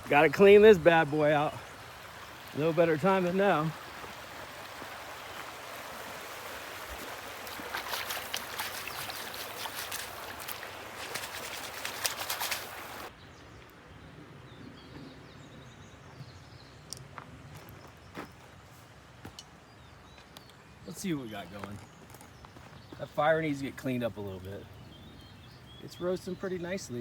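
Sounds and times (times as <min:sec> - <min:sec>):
creek rushing: 0:00.0 - 0:13.1
water splashes and clicks: 0:03.8 - 0:13.1
faint bird chirps: 0:07.4 - 0:13.5.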